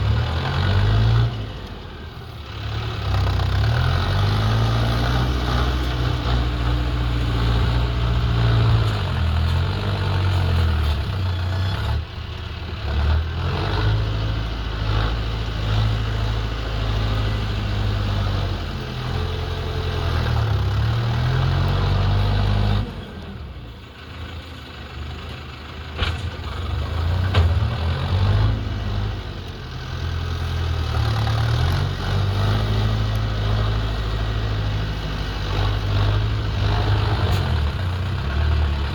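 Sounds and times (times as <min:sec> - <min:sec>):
backhoe diesel engine revving: 0:00.0 - 0:38.9.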